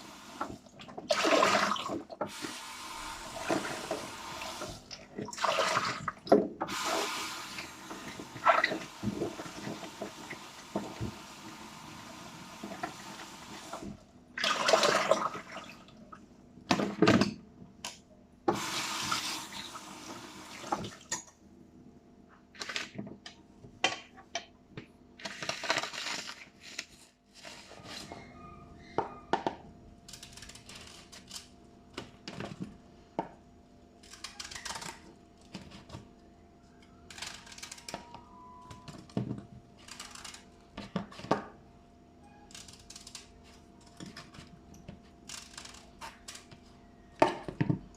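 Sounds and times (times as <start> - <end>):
tap running water: 0.0 - 15.4, 18.5 - 21.2.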